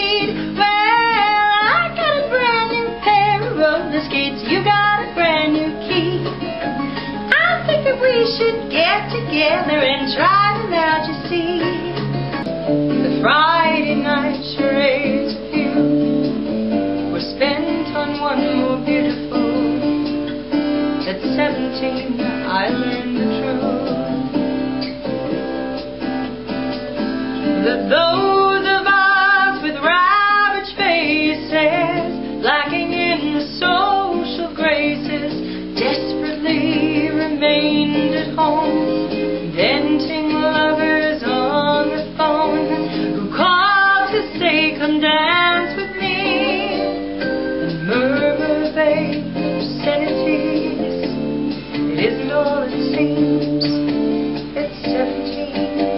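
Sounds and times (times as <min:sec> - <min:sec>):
woman singing: 0:00.0 - 0:24.2, 0:27.4 - 0:55.9
guitar accompaniment: 0:00.0 - 0:55.9.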